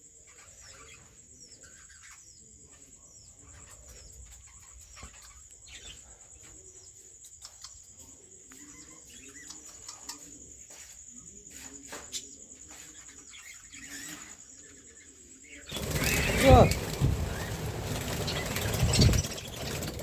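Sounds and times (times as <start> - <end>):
small birds chirping: 0.0 - 20.0
doves cooing: 15.7 - 20.0.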